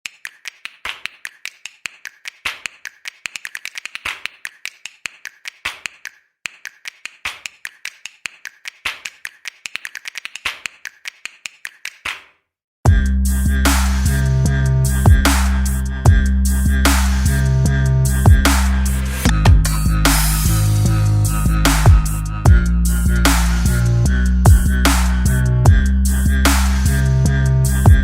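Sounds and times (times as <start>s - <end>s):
sharp clicks and taps: 0.0s - 12.2s.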